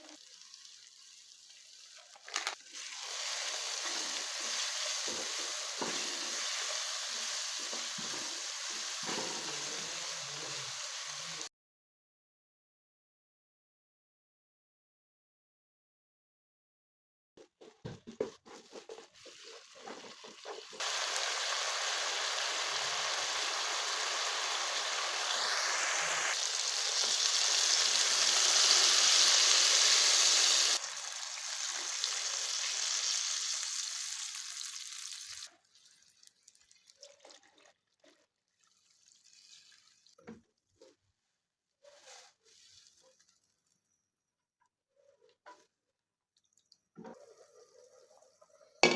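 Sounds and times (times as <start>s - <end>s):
water running: 0.0s - 11.5s.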